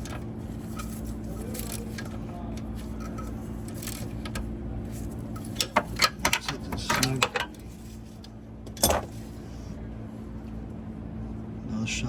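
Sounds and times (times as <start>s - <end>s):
scraping rattle: 0.0s - 8.2s
steady low hum: 0.0s - 12.0s
metal tools clinking: 5.3s - 7.8s.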